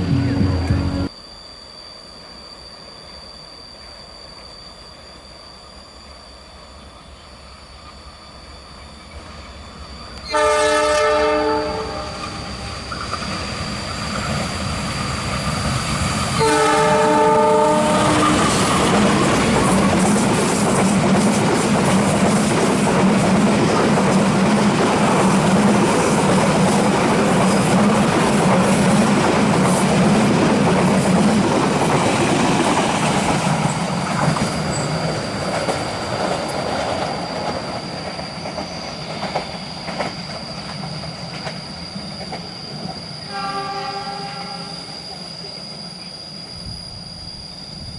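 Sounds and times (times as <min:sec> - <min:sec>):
train horn note: 0:00.0 - 0:01.1, 0:10.2 - 0:12.7, 0:16.4 - 0:19.8, 0:43.2 - 0:44.9
train wheels rumbling on rails: 0:08.9 - 0:47.9.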